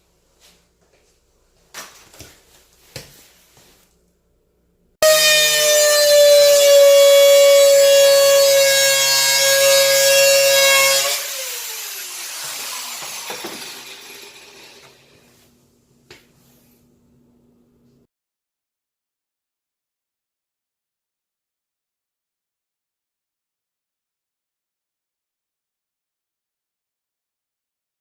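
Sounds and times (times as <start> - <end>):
power saw whining: 5.0 - 15.3
saw blade coasting down: 5.1 - 15.3.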